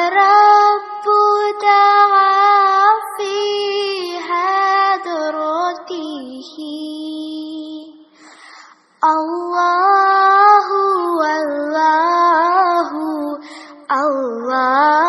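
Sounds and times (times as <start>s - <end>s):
person singing unaccompanied: 0.0s - 8.1s, 9.0s - 15.0s
singer breathing: 8.1s - 9.0s, 13.4s - 13.9s.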